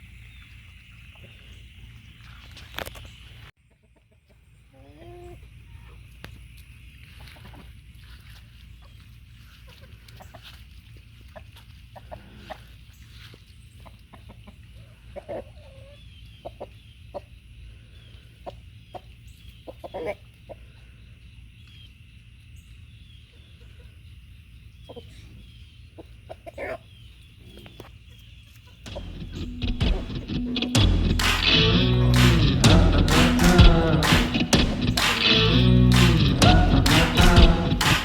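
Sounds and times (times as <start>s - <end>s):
chickens clucking: 13.8s - 17.3s, 18.4s - 20.6s
music: 28.9s - 38.0s.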